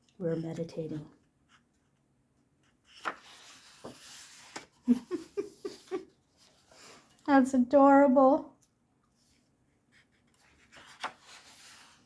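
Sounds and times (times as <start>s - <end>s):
paper page turning: 2.9s - 4.8s, 10.3s - 12.0s.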